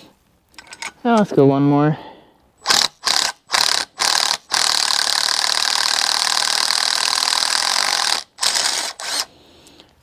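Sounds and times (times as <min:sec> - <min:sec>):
power drill cutting metal: 0:02.6 - 0:09.3.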